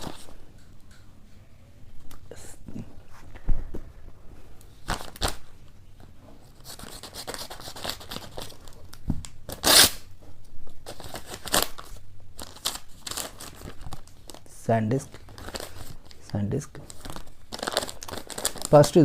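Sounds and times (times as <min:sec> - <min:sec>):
package wrapping tearing: 0:06.7 - 0:10.1, 0:10.8 - 0:14.5, 0:16.9 - 0:18.9.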